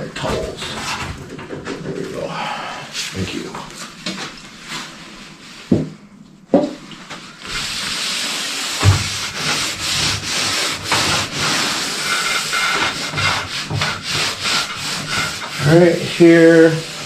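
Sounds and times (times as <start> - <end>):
sharp knocks: 5.7 - 6.8
rubbing on car body filler: 7.4 - 17.0.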